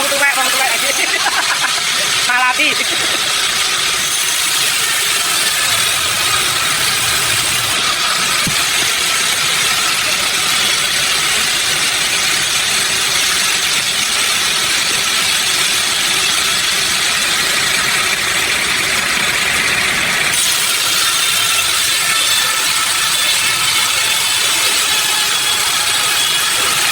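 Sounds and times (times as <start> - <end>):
sawmill machinery running: 0.0 - 26.9.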